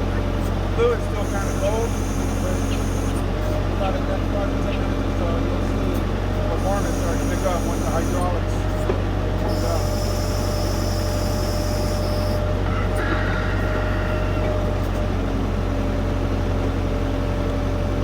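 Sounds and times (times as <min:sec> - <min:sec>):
diesel tractor engine running: 0:00.0 - 0:18.0
hydraulic whining: 0:00.1 - 0:04.0, 0:05.9 - 0:15.2.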